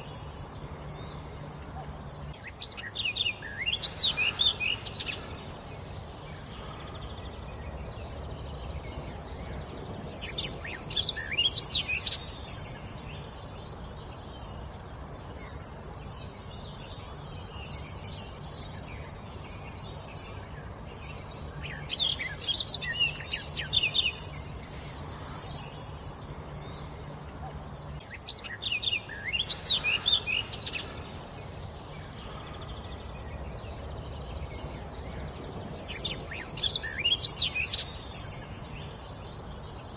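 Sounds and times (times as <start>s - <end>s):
low background hum: 0.0s - 39.9s.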